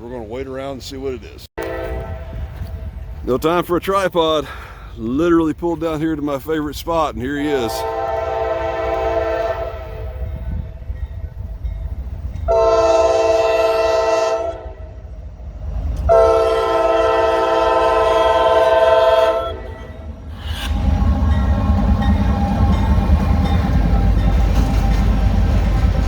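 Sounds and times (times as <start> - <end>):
train rumbling past: 0.1 - 26.0
locomotive air horn blasts: 1.6 - 2.6, 7.6 - 10.2, 12.5 - 15.0, 16.1 - 19.9.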